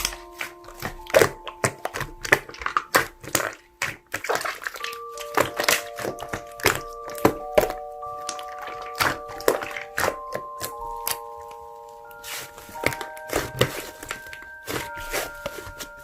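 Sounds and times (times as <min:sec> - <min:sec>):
slime clicking and popping: 0:00.0 - 0:11.2
background music with held notes: 0:00.0 - 0:16.0.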